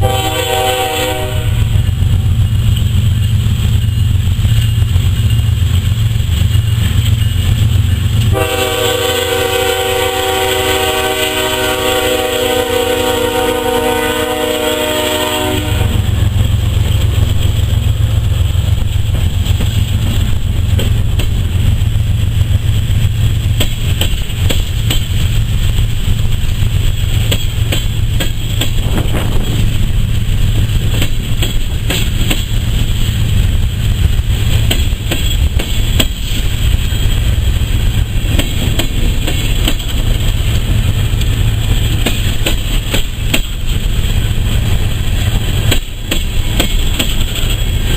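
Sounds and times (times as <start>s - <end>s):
train chord horn: 0.0s - 1.8s, 8.2s - 16.4s
wheels clicking over rail joints: 1.7s - 8.4s, 16.1s - 47.9s.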